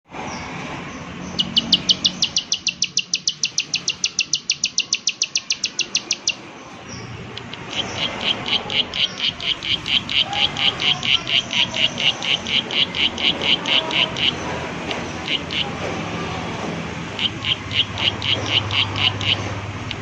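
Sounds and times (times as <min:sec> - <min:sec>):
bird clicking call: 0:01.4 - 0:06.4, 0:07.3 - 0:20.0
lower harsher bird notes: 0:07.3 - 0:20.0.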